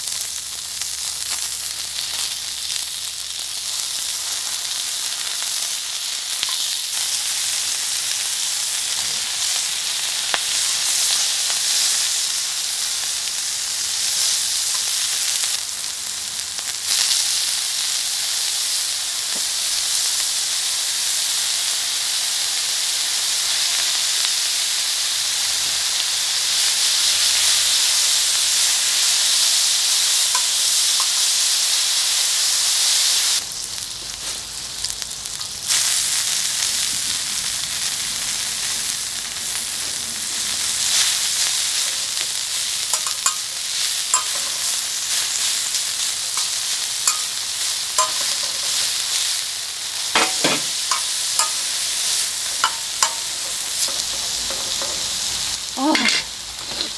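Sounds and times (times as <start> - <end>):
pork belly sizzling: 0.0 - 56.9
fat popping and crackling: 50.0 - 56.9.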